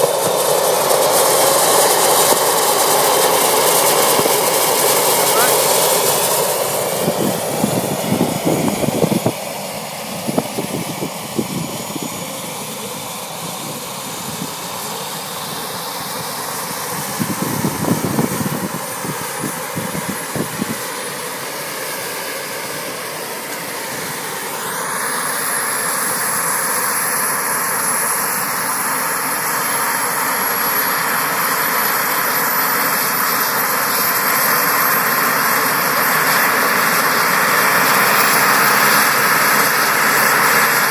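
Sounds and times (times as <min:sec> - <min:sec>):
model helicopter motor whine: 0:00.0 - 0:40.9
wind buffeting microphone: 0:06.9 - 0:09.5, 0:10.2 - 0:12.3, 0:17.0 - 0:20.8.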